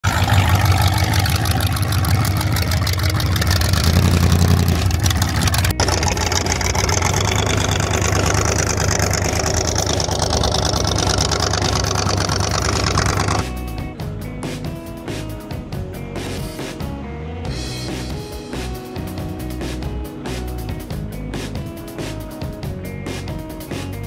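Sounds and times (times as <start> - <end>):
car engine idling loudly: 0.0 - 13.4.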